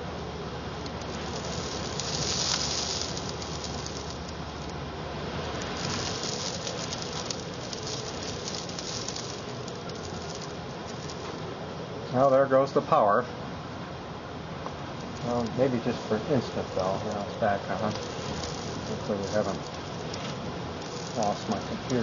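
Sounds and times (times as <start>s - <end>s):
sand pattering on windows: 0.8s - 4.8s, 5.5s - 11.5s, 15.0s - 22.0s
wind gusting against house: 14.2s - 22.0s.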